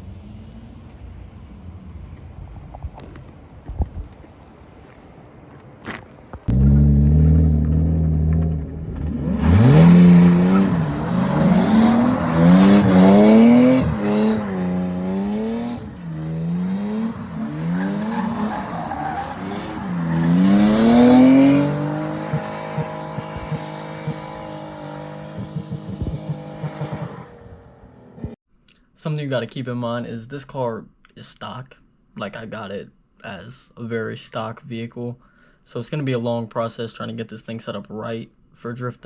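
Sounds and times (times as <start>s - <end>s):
tyre squeal and skidding: 5.9s - 27.8s
car engine revving: 6.5s - 28.4s.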